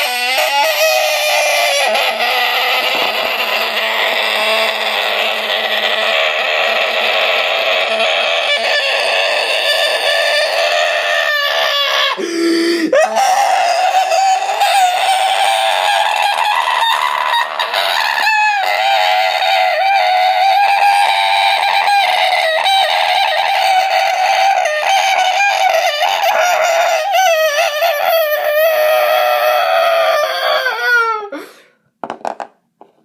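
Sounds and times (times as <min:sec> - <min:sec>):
chickens clucking and squawking: 0:01.8 - 0:12.3.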